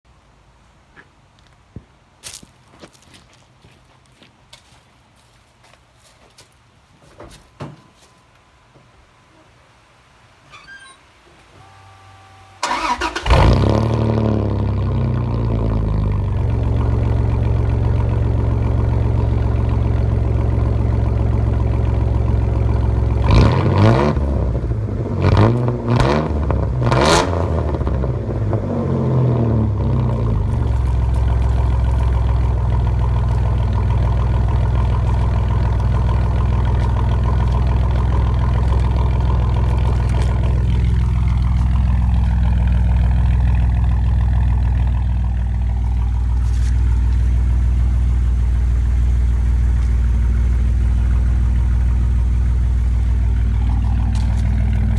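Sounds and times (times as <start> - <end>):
truck engine starting and idling: 10.3 - 54.9
engine revving: 12.6 - 18.4, 22.9 - 48.7.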